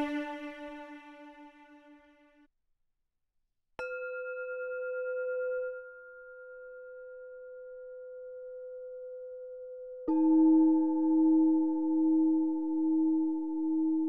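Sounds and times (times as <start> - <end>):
bell-like tone ringing: 0.0 - 1.2, 10.1 - 14.0
bowed string note: 0.0 - 2.3.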